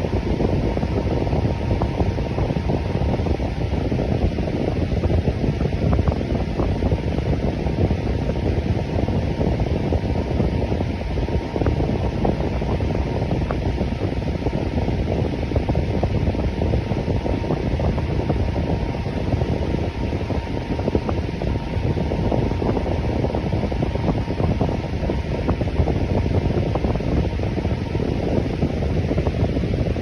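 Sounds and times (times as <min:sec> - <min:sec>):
electric fan running: 0:00.0 - 0:30.0
faint steady hum: 0:00.0 - 0:30.0.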